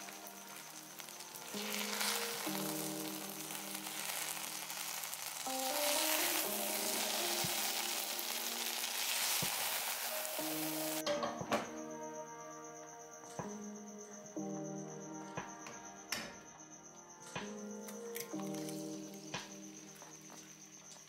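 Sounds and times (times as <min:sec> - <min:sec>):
food sizzling in a pan: 0:00.0 - 0:11.3
background music: 0:00.0 - 0:21.0.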